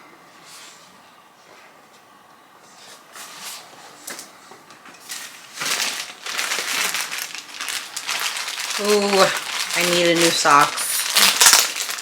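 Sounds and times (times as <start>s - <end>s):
plastic packaging crinkling: 5.1s - 12.0s.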